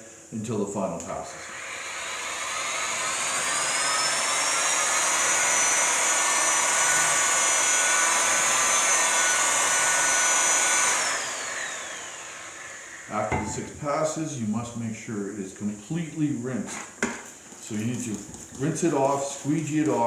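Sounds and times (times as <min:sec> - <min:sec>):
grinder motor whining: 0:01.6 - 0:13.8.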